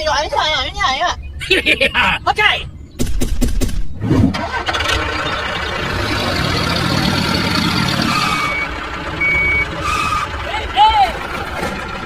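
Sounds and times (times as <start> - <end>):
vehicle engine running: 4.4 - 12.0.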